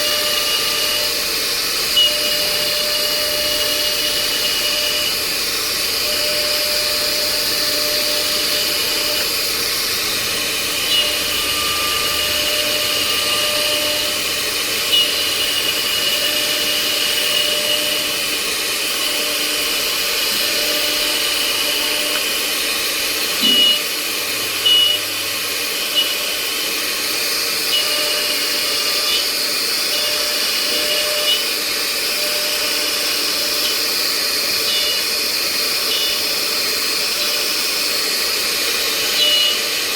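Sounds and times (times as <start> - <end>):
cnc router whine: 0.0 - 39.9.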